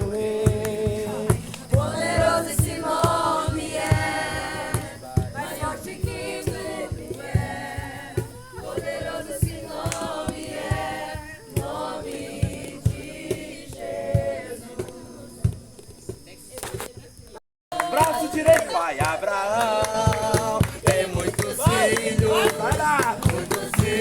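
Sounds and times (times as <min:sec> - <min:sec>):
group singing a worship song: 0:00.0 - 0:16.0, 0:17.7 - 0:24.0
hands clapping in time: 0:00.5 - 0:01.6, 0:09.8 - 0:10.1, 0:17.7 - 0:24.0.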